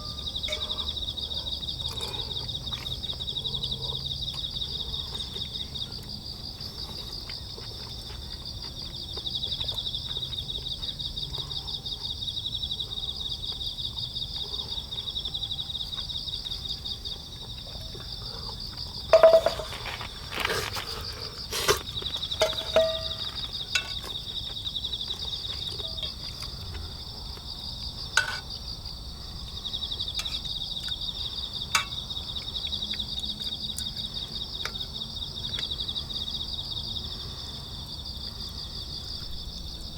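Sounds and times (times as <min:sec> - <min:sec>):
sharp metallic clinks: 0:00.0 - 0:01.0, 0:19.2 - 0:19.8, 0:22.3 - 0:24.1
crickets trilling: 0:00.0 - 0:39.9.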